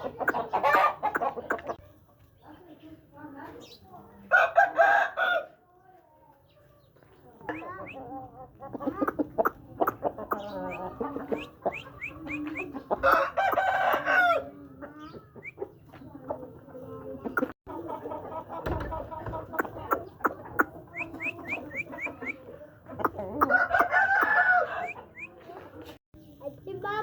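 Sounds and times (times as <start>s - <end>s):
chickens clucking: 0.0s - 27.0s
rooster crowing: 4.3s - 5.5s, 13.0s - 14.5s, 23.5s - 25.0s.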